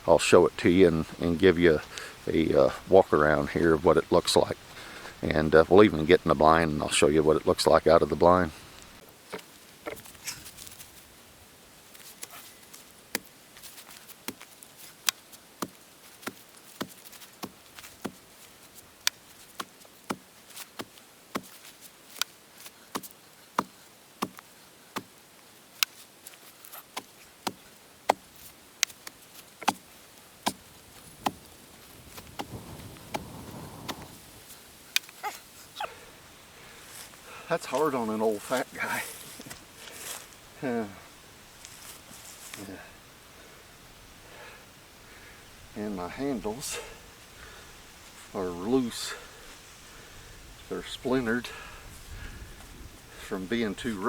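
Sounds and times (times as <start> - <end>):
soft scraping rustle: 0.0 - 44.2, 45.5 - 54.0
tamping tool knocking ground: 13.9 - 22.3, 22.9 - 24.4, 25.0 - 25.2, 26.7 - 35.2.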